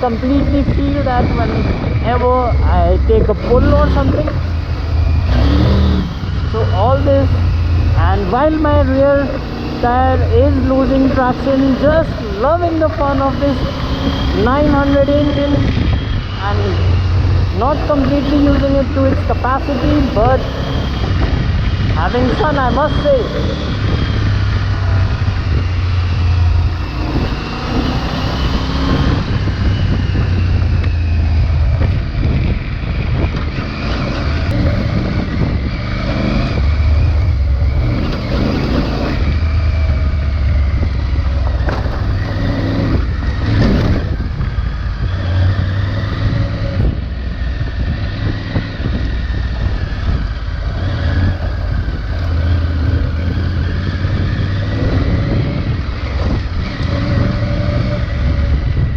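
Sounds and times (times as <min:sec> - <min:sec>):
motorcycle engine revving: 0:00.0 - 0:58.9
sharp knocks from rough ground: 0:41.4 - 0:42.3.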